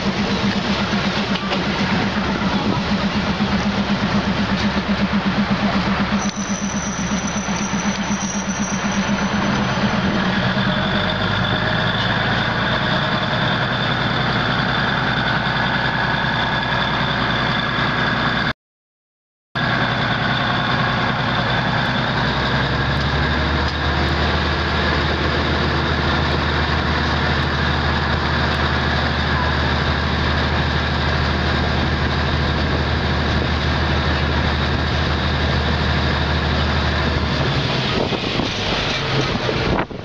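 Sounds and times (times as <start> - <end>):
thin high whine: 0.0 - 11.5
diesel train engine drone: 0.0 - 18.5, 19.6 - 40.0.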